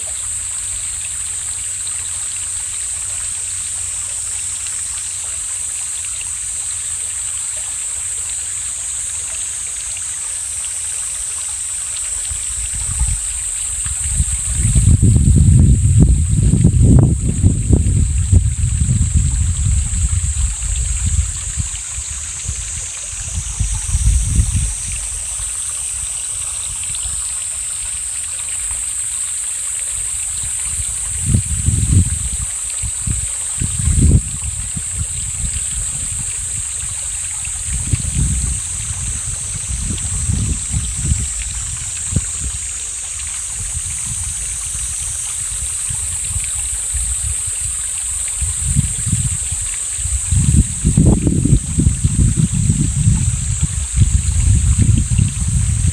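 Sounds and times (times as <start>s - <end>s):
mountain stream running: 0.0s - 55.9s
wind buffeting microphone: 12.2s - 27.8s, 30.2s - 55.9s.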